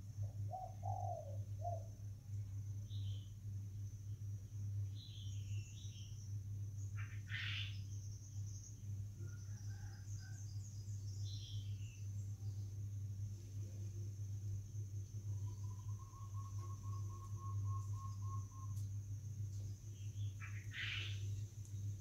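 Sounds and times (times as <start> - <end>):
steady low hum: 0.0 - 22.0
small birds chirping: 4.0 - 12.9, 15.1 - 22.0.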